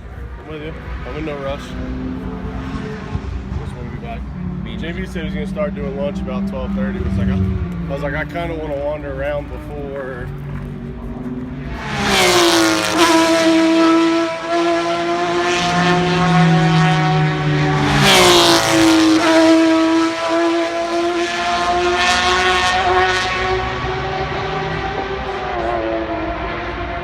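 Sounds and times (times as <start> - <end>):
race cars passing at high revs: 0.0 - 27.0.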